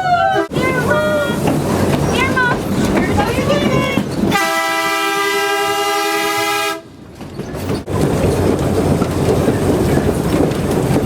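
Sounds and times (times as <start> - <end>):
train air horn blast: 4.3 - 6.9.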